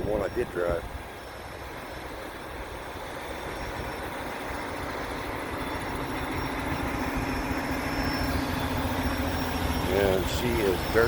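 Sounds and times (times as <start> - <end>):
low engine hum: 0.0 - 11.0
road noise: 0.0 - 11.0
truck engine running: 0.0 - 11.0.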